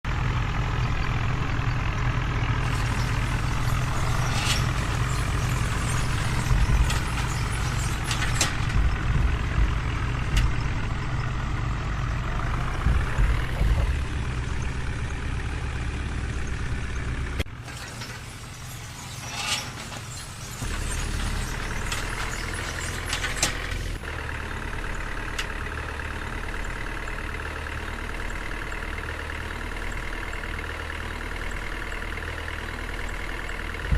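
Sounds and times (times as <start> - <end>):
heavy vehicle engine humming: 0.0 - 33.9.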